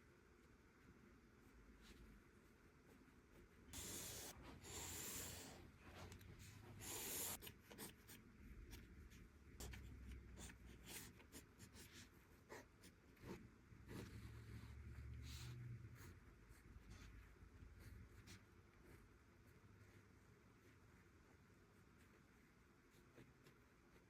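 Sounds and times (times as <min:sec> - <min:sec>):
drawing tool scratching on paper: 0:03.7 - 0:08.8.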